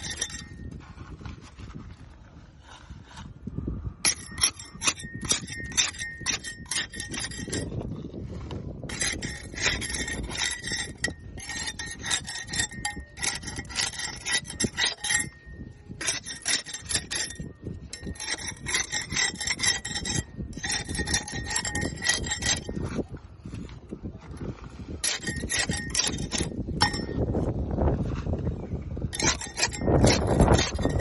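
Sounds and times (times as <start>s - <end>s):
scraping barnacles off boat hull: 4.1s - 15.4s, 16.0s - 23.7s, 24.3s - 27.2s, 29.1s - 31.0s.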